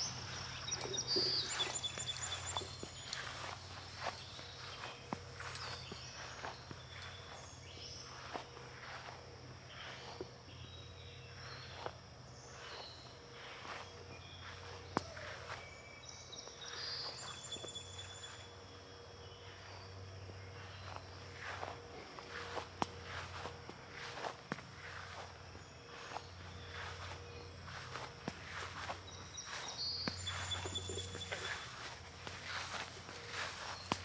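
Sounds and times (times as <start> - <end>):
footsteps walking: 0.0 - 10.5, 19.5 - 34.0.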